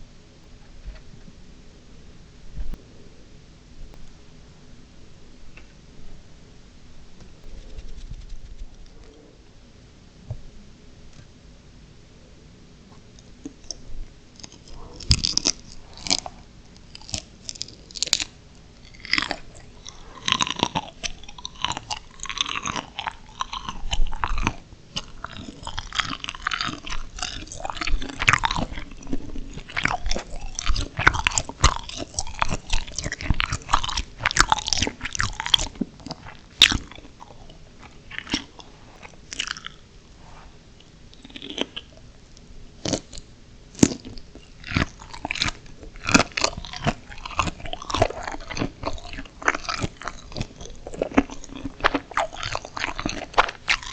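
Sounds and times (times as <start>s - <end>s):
shrimp crunching when chewed: 13.2s - 39.9s, 40.8s - 42.0s, 42.8s - 53.9s.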